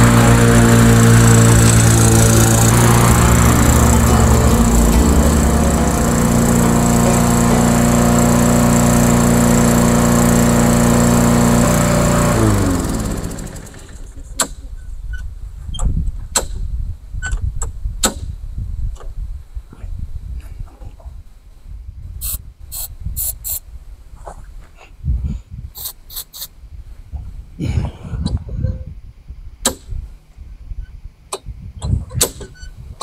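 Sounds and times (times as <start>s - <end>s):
lawnmower engine running: 0.0s - 14.3s.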